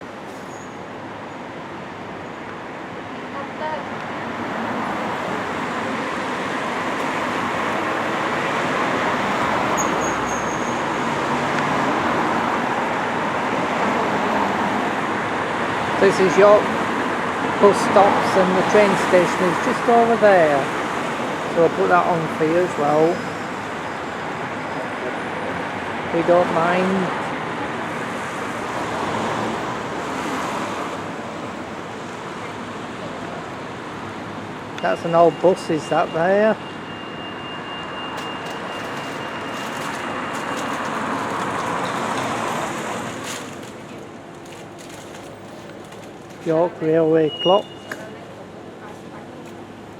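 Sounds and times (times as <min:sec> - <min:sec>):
road traffic noise: 0:00.0 - 0:49.9
faint high squeal: 0:00.4 - 0:00.8, 0:09.8 - 0:10.8.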